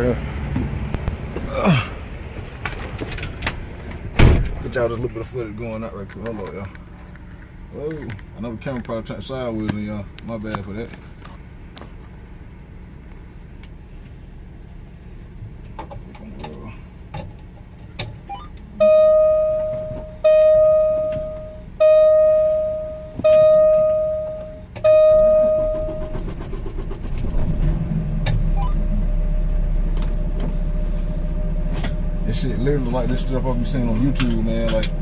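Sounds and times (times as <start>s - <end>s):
low engine rumble: 0.0s - 35.0s
vehicle warning chime: 18.3s - 26.2s.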